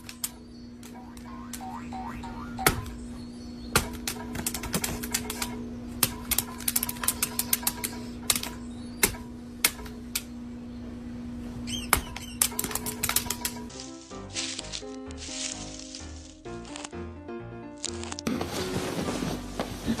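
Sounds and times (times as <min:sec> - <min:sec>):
steady low hum: 0:00.0 - 0:17.1
sharp irregular clicks: 0:03.8 - 0:10.3.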